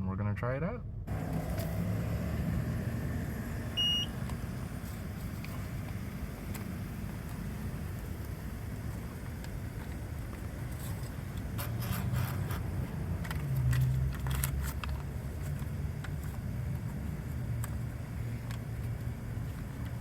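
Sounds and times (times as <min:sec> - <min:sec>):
car idling: 0:01.1 - 0:20.0
scraping rustling handling noises: 0:09.8 - 0:17.8.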